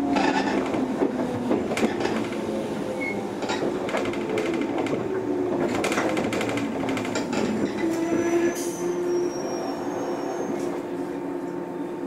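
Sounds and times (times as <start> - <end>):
train wheels rattling: 0.1 - 8.8.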